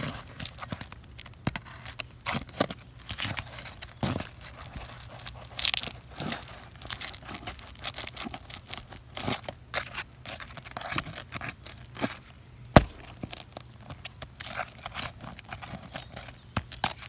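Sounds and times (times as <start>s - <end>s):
sharp knock: 12.8s - 13.2s
shingles scraping and tearing: 12.8s - 13.6s.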